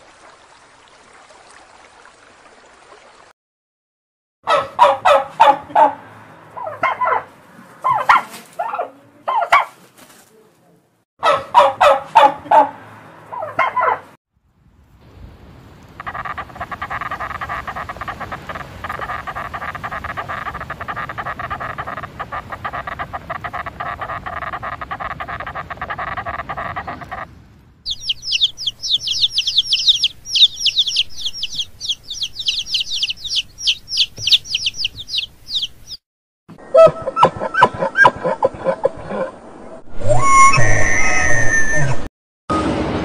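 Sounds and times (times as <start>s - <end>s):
baby chicks peeping: 16.1s - 27.3s, 27.9s - 36.0s.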